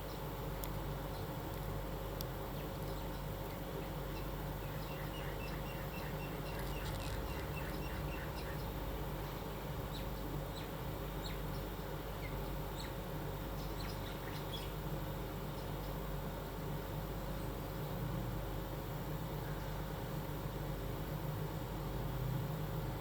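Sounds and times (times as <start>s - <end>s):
low electrical hum: 0.0s - 23.0s
bird chirping: 4.1s - 8.8s.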